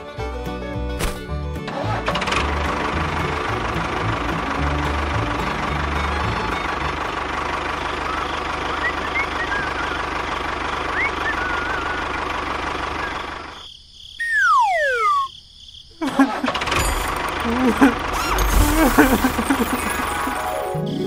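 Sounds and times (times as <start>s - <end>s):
diesel tractor engine running: 0.7s - 13.6s, 16.2s - 21.0s
whistle tone falling in pitch: 8.0s - 10.2s, 10.9s - 12.2s, 14.2s - 15.3s
faint chirps: 13.0s - 16.0s.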